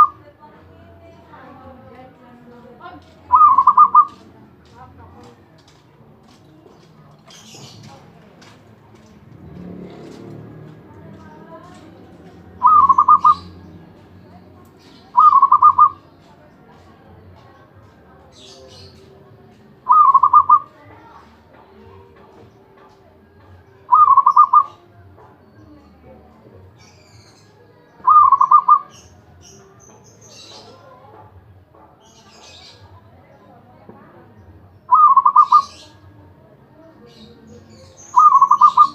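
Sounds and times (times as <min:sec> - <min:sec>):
small birds chirping: 0:00.0 - 0:38.9
dove cooing: 0:03.3 - 0:04.2, 0:11.6 - 0:13.6, 0:15.1 - 0:16.0, 0:19.9 - 0:20.7, 0:23.9 - 0:24.8, 0:28.0 - 0:28.9, 0:34.9 - 0:35.8, 0:38.2 - 0:38.9.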